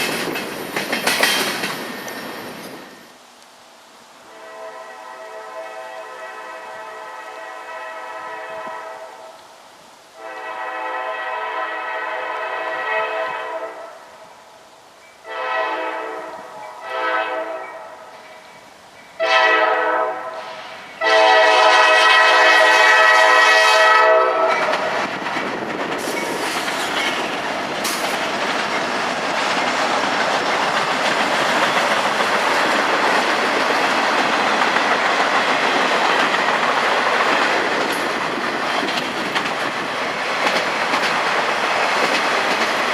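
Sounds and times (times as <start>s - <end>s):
wheels clickety-clack on rails: 0.0s - 3.1s, 24.4s - 42.9s
train passing close by: 0.0s - 3.2s, 4.2s - 9.4s, 10.1s - 42.9s
locomotive air horn blasts: 4.2s - 9.4s, 10.2s - 14.0s, 15.2s - 18.1s, 19.2s - 24.7s.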